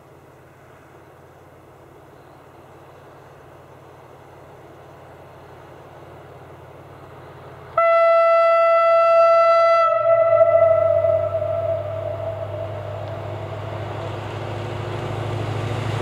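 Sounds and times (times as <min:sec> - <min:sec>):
diesel railcar engine idling: 0:00.0 - 0:16.0
train horn blast: 0:07.8 - 0:14.2.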